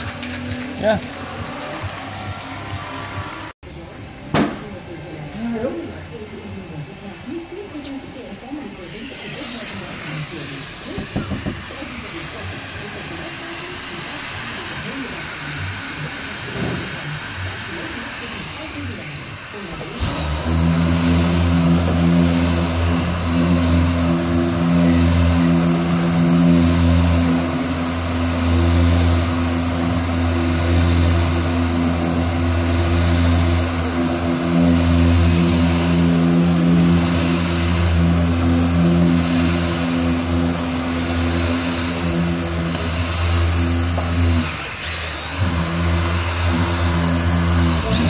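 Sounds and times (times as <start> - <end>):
machine sander on filler: 5.4 - 48.0.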